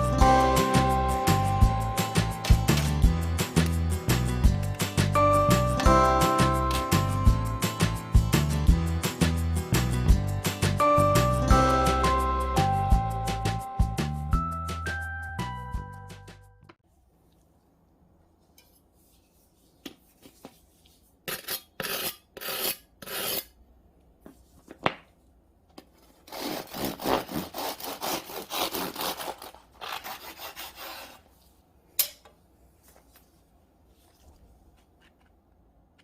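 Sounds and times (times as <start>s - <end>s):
bread knife rasping through crust: 21.3s - 23.6s, 26.2s - 31.2s.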